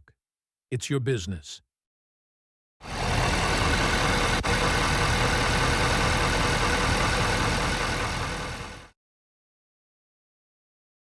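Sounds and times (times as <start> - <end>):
diesel engine idling: 2.8 - 8.9.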